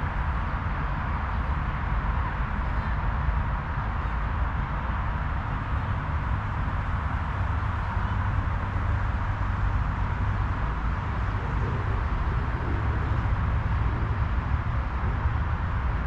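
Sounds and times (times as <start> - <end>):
wind rumble on microphone: 0.0 - 16.0
wind blowing: 7.2 - 16.0.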